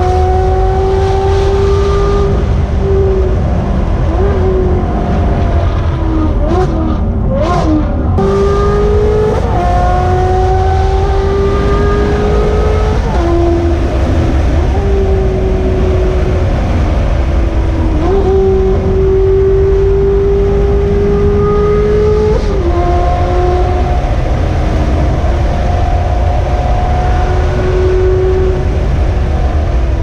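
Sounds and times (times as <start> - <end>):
loud sports car engine accelerating: 0.0 - 30.0.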